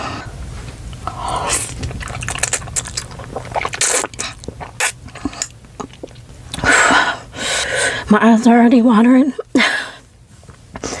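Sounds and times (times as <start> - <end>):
close chewing and mouth clicks: 0.9 - 6.6
noodle slurps: 1.1 - 6.2.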